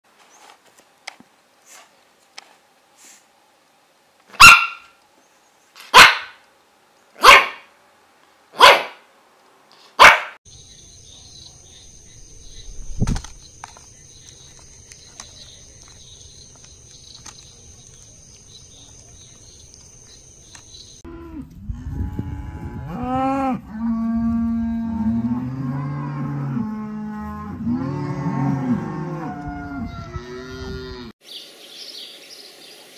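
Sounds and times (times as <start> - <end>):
faint hiss: 0.2 - 4.3
puppy barking: 4.4 - 4.9, 5.9 - 6.4, 7.2 - 7.7, 8.6 - 9.0, 10.0 - 10.4
cow mooing: 21.1 - 31.1.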